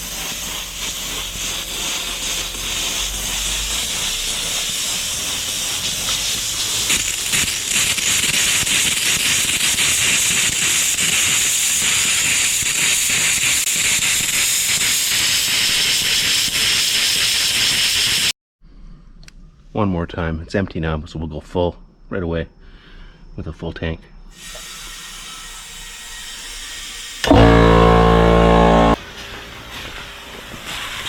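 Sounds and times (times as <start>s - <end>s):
compressed air hissing: 0.0s - 18.3s.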